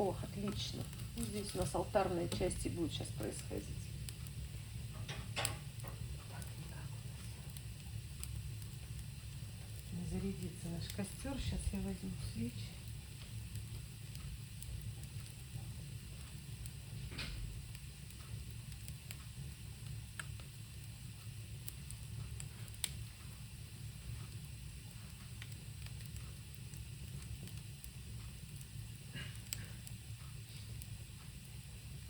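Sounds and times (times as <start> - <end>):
fire crackling and hissing: 0.0 - 32.0
fire popping: 0.0 - 32.0.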